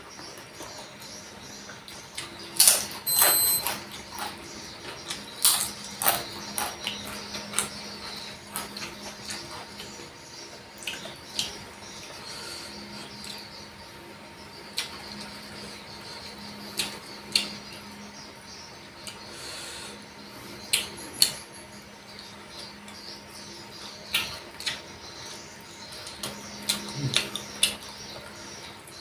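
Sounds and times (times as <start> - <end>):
crunchy chewing: 2.2 - 13.5.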